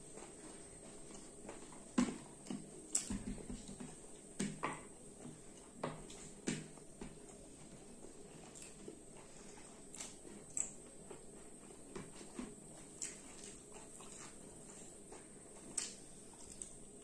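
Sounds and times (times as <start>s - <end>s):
people chewing and lip smacking: 0.1s - 17.0s.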